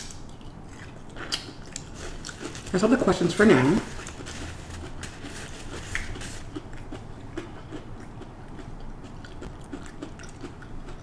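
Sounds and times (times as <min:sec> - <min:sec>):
person chewing crunchy food: 0:00.0 - 0:02.8, 0:03.8 - 0:11.0.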